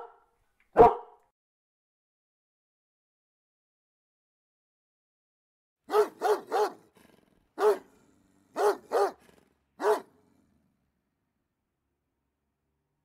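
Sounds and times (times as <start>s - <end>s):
dog barking: 0.0s - 1.3s, 5.9s - 6.9s, 7.6s - 9.2s, 9.8s - 10.2s.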